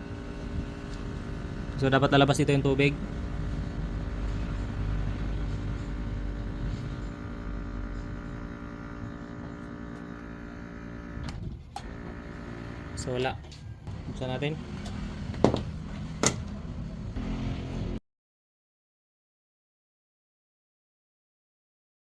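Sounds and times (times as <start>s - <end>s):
water pump humming: 0.0s - 13.2s.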